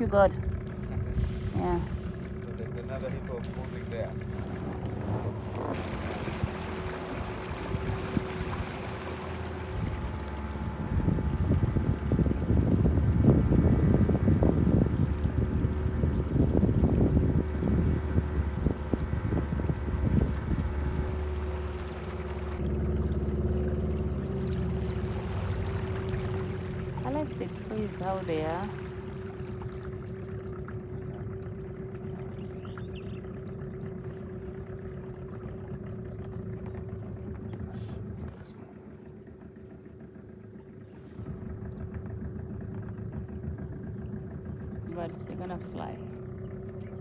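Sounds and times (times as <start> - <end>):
wind buffeting microphone: 0.0 - 22.8
boat motor running: 0.0 - 47.0.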